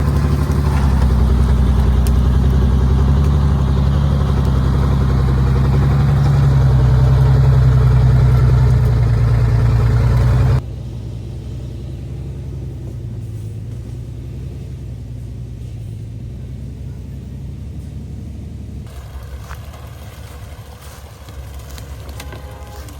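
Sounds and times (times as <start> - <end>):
truck engine droning: 0.0 - 22.9.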